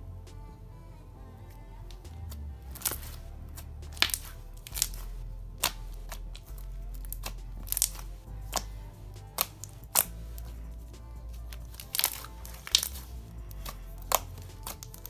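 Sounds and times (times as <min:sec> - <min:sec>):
faint background music: 0:00.0 - 0:15.0
slime popping and clicking: 0:03.9 - 0:06.5, 0:07.1 - 0:08.7, 0:11.8 - 0:15.0.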